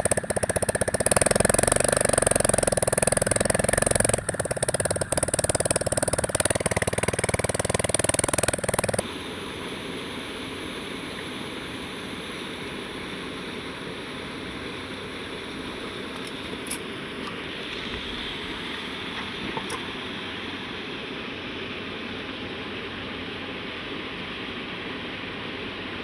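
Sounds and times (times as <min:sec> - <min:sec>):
engine running: 0:00.0 - 0:09.1.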